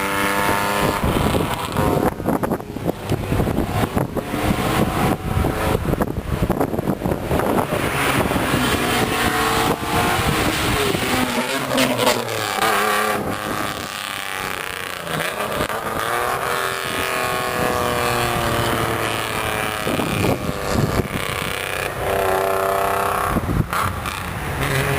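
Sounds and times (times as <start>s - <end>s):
car engines revving: 0.0s - 24.9s.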